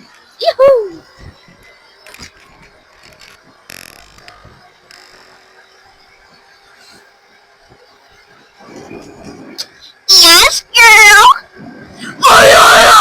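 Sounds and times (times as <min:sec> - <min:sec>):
electric bike motor whine: 0:01.0 - 0:10.1
bike clicks and rattles: 0:01.1 - 0:05.6.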